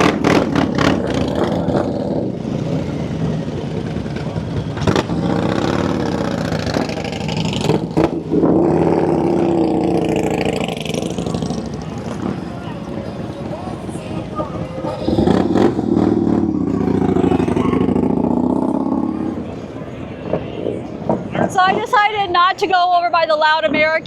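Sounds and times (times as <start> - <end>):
motorcycle engines revving: 0.0 - 22.1
voices: 11.1 - 24.0.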